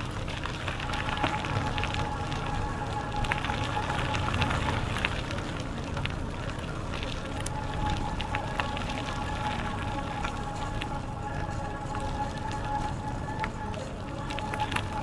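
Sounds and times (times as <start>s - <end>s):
bicycle tyres crackling on trail: 0.0s - 15.0s
wind rumble on microphone: 0.0s - 15.0s.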